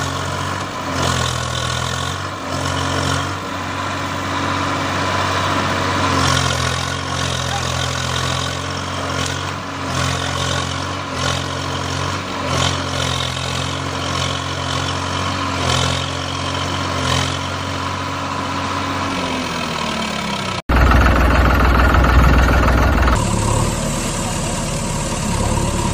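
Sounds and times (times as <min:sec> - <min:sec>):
heavy vehicle engine running: 0:00.0 - 0:25.9
deep engine rumble: 0:20.6 - 0:25.9.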